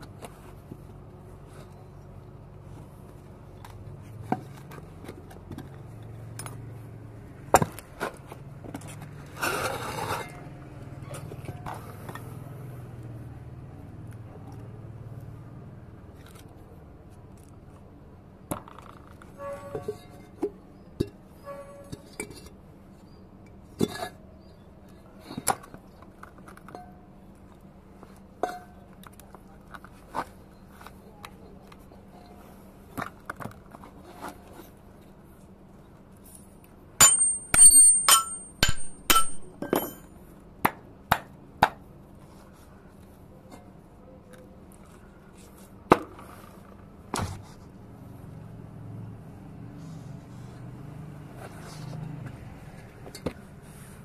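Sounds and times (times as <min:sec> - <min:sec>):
metal parts knocking and clinking: 0:37.0 - 0:40.1
ringing metal-on-metal strikes: 0:37.0 - 0:40.1.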